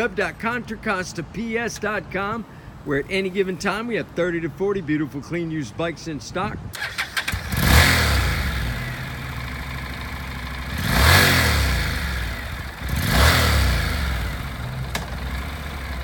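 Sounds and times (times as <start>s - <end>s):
motorcycle engine starting and revving: 6.7s - 16.0s.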